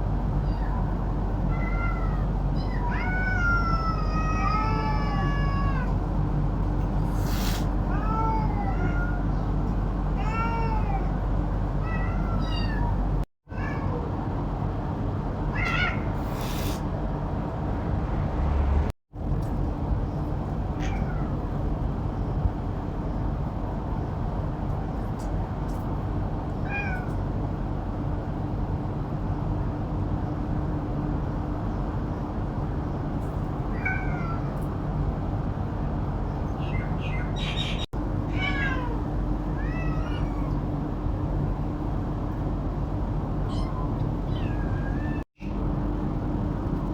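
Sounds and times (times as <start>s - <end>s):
cats meowing: 0.4s - 6.0s, 7.4s - 14.1s, 15.5s - 16.8s, 20.8s - 21.4s, 33.6s - 34.7s, 36.4s - 40.8s, 43.4s - 45.3s.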